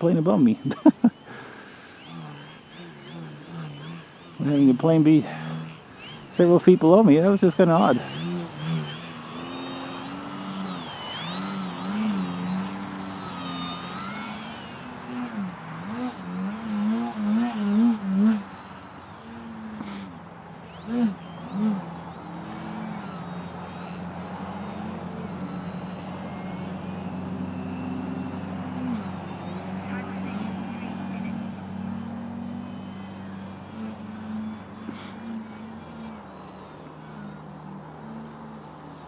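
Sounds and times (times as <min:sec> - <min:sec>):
model plane motor buzzing: 0:00.0 - 0:39.0
thin high whine: 0:00.0 - 0:39.0.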